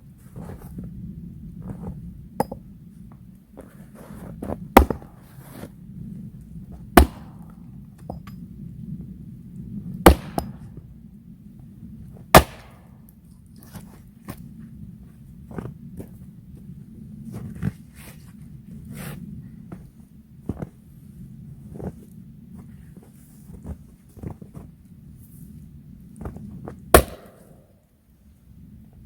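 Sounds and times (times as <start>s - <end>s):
handling and shuffling noises: 0.0s - 2.2s, 2.9s - 6.9s, 13.4s - 26.9s.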